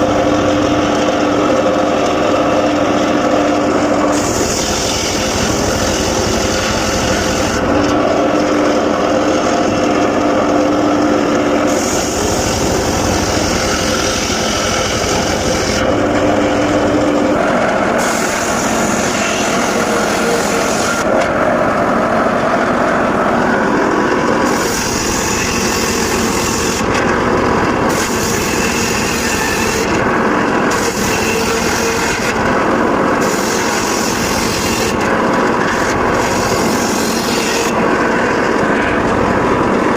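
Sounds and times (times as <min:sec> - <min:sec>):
circular saw cutting wood: 0:00.0 - 0:39.9.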